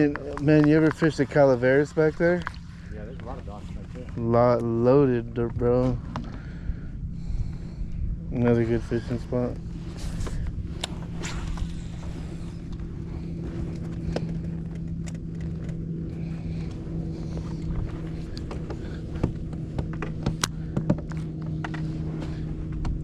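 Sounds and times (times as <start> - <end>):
boat motor humming: 0.0 - 23.0
knocks and clicks of gear: 12.6 - 15.9, 17.5 - 23.0.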